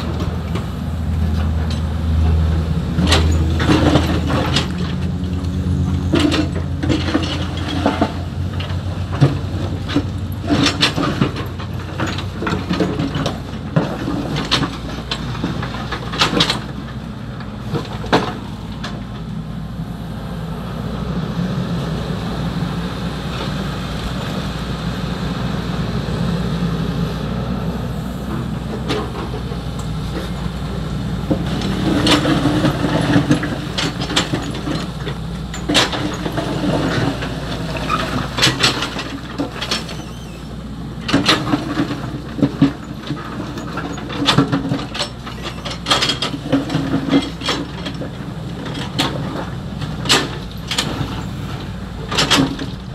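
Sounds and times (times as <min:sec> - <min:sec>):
excavator diesel engine running: 0:00.0 - 0:52.9
bucket clanking and rattling: 0:03.0 - 0:05.4, 0:06.0 - 0:19.2, 0:31.2 - 0:40.2, 0:41.0 - 0:52.9.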